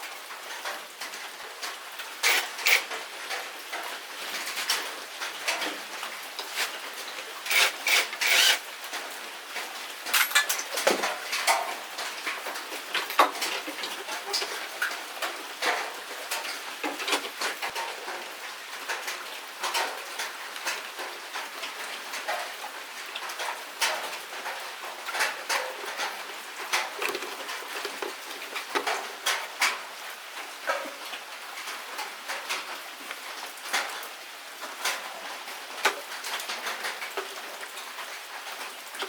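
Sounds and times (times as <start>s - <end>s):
metal parts and tools clinking: 2.2s - 3.0s, 7.4s - 8.6s, 10.1s - 11.0s.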